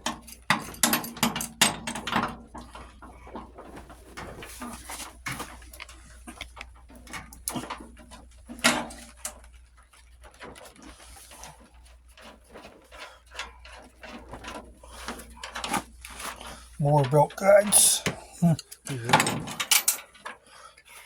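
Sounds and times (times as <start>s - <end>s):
hand tools clinking on metal: 13.4s - 20.4s.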